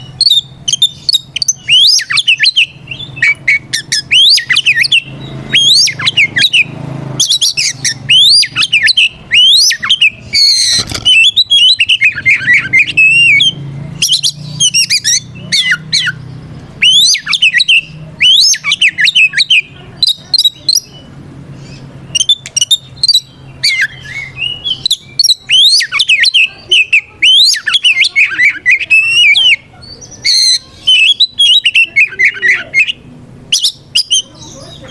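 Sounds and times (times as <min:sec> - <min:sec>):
bird singing whistled phrases: 0:00.0 - 0:34.9.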